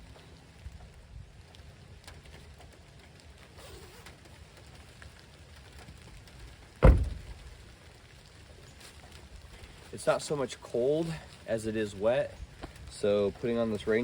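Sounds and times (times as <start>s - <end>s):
raindrops ticking: 0.0s - 14.0s
steady rain: 0.0s - 14.0s
loud thump: 6.8s - 7.4s.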